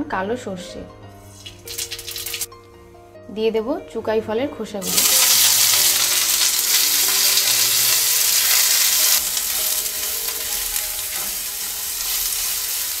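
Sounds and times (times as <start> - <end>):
food sizzling in hot oil: 1.2 - 2.5, 4.8 - 13.0.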